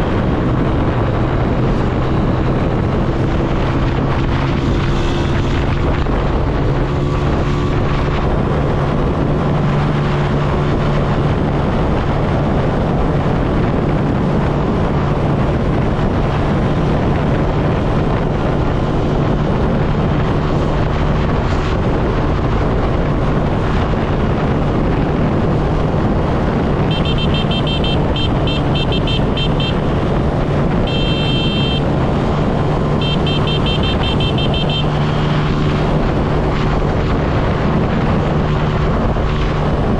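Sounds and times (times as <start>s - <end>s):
motorcycle engine running: 0.0s - 39.9s
wind rushing over microphone: 0.0s - 39.9s
shrill horn beeping: 26.9s - 30.1s, 30.8s - 32.0s, 33.0s - 35.0s.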